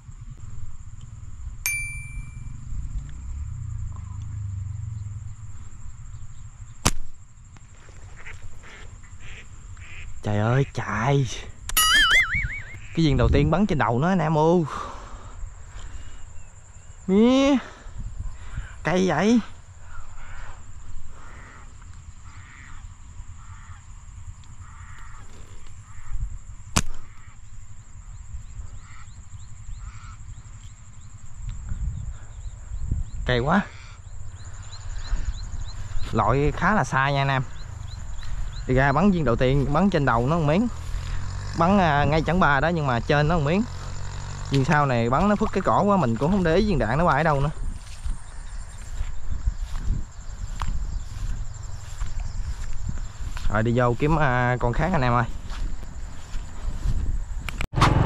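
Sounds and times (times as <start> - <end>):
metallic ding: 1.7 - 2.6, 11.8 - 12.2
slingshot snap: 6.8 - 7.1, 26.8 - 27.0
harsh caw-like bird calls: 8.0 - 10.2, 11.9 - 13.0, 19.7 - 30.5, 33.6 - 36.1.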